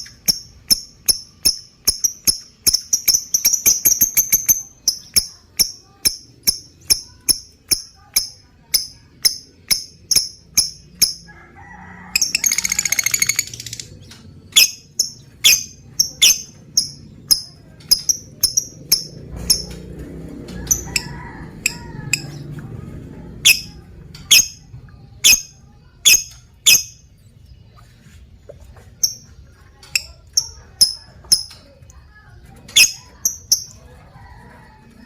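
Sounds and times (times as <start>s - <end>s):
lovebird chattering trill: 0.0s - 11.3s, 12.1s - 19.8s, 20.6s - 22.4s, 23.4s - 27.1s, 29.0s - 29.3s, 32.7s - 33.8s
lovebird chirping: 0.0s - 11.3s, 12.2s - 19.8s, 23.4s - 28.1s, 29.0s - 31.7s, 32.7s - 33.8s.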